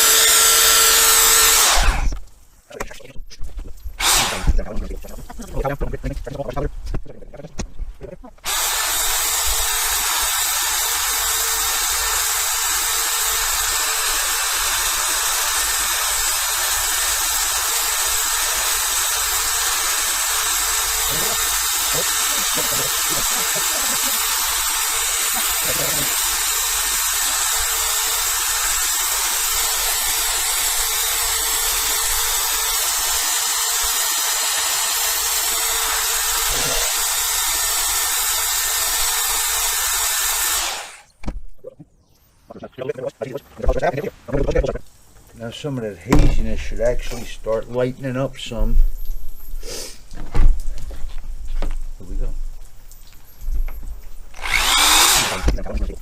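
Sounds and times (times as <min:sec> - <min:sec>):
electric drill motor whine: 0:00.0 - 0:02.2, 0:03.9 - 0:04.6, 0:08.4 - 0:41.1, 0:53.4 - 0:55.6
sanding pad hiss: 0:08.5 - 0:35.2, 0:49.6 - 0:50.1.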